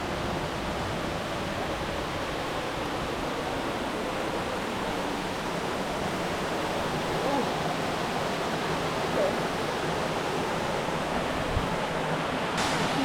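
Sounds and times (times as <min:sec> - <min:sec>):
waterfall rushing: 0:00.0 - 0:13.0
faint voice-like sounds: 0:07.2 - 0:07.6.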